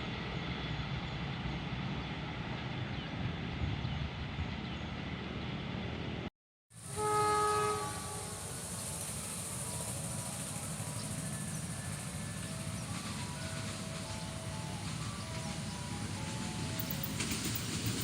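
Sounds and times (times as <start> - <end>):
train horn blast: 6.8 - 8.8
train wheels rumbling on rails: 6.8 - 18.0.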